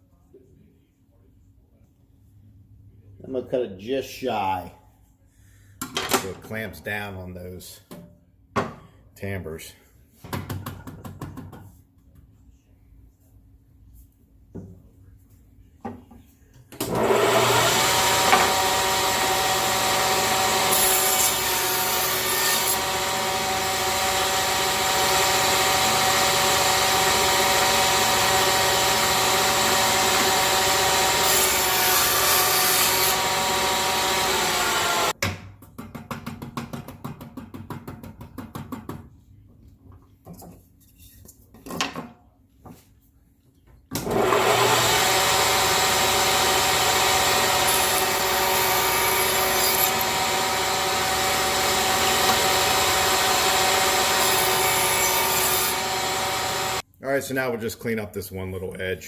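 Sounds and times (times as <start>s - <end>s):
saw blade cutting wood: 16.8s - 35.1s, 44.0s - 56.8s
table saw whining: 16.8s - 35.2s, 44.0s - 56.8s.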